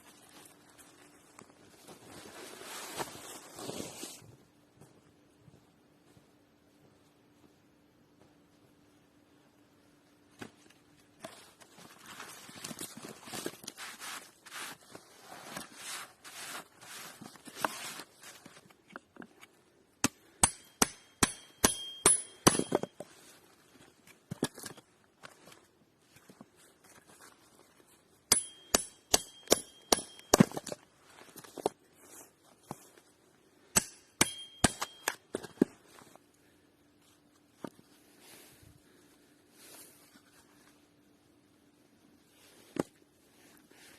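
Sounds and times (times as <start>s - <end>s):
rustling and scraping: 0.0s - 4.4s, 10.3s - 19.5s, 30.4s - 33.2s, 37.0s - 41.1s
sharp metallic strikes: 20.4s - 22.7s, 28.3s - 30.4s, 33.8s - 35.2s.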